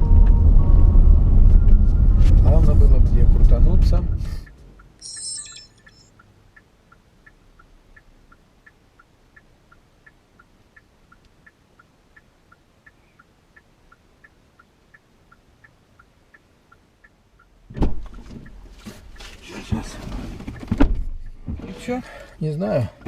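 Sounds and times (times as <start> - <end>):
turn signal ticking: 3.8 - 5.0, 5.8 - 23.0
loud thump: 17.7 - 18.1.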